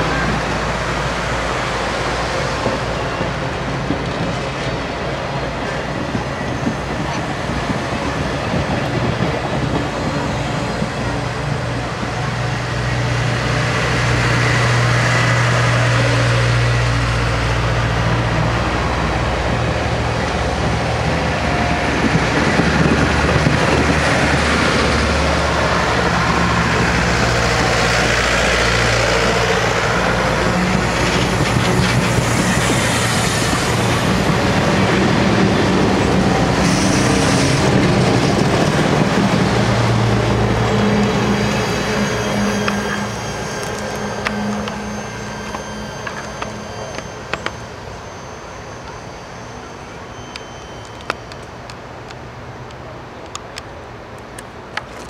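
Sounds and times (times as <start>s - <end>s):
train rumbling past: 0.0s - 55.0s.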